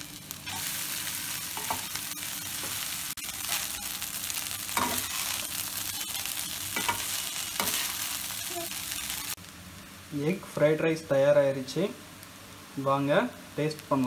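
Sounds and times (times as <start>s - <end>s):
rice sizzling in a pan: 0.0s - 14.0s
spatula scraping a pan: 4.8s - 8.1s.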